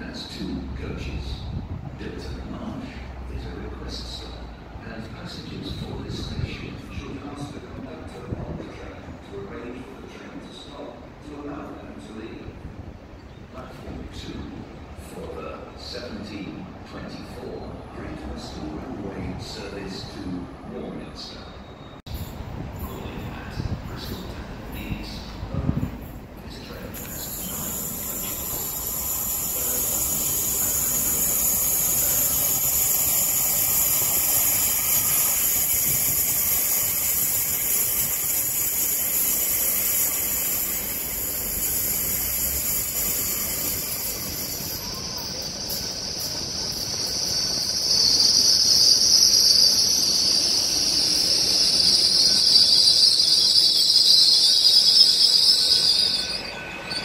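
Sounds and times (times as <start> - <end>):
train high whine: 0.0 - 57.0
train brakes squealing: 15.0 - 57.0.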